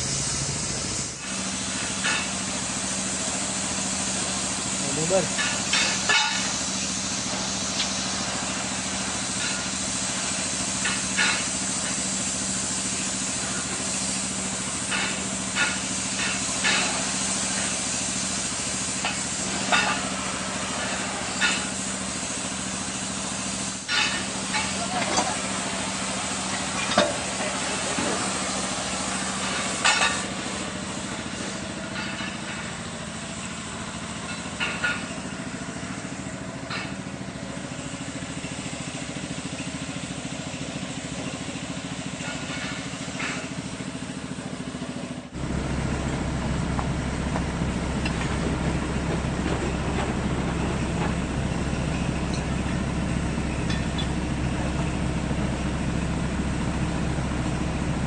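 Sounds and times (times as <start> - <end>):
excavator diesel engine running: 0.0 - 58.0
sharp metal clanks: 5.3 - 6.5.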